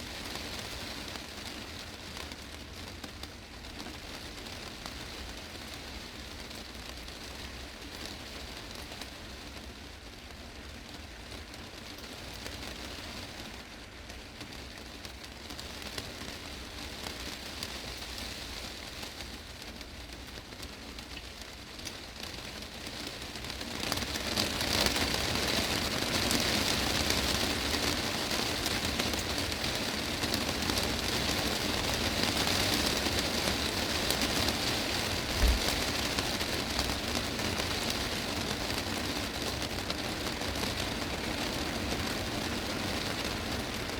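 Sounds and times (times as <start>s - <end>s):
heavy rain on glass roof: 0.0s - 43.9s
low thump: 35.4s - 35.8s.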